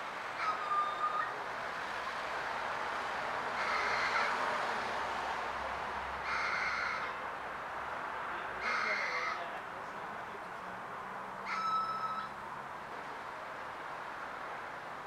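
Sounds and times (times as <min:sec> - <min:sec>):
outdoor background noise: 0:00.0 - 0:15.0
bird calling: 0:11.5 - 0:12.4.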